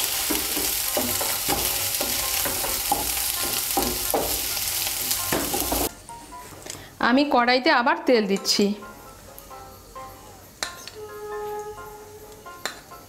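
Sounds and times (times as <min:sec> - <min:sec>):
soya chunks sizzling in oil: 0:00.0 - 0:05.9.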